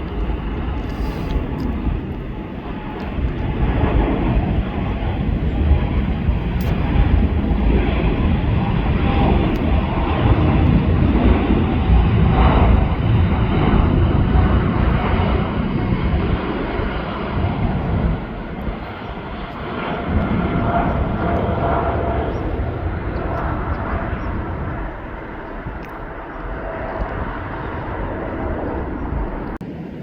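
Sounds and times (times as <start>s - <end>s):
jet engines roaring at takeoff: 0.0s - 30.0s.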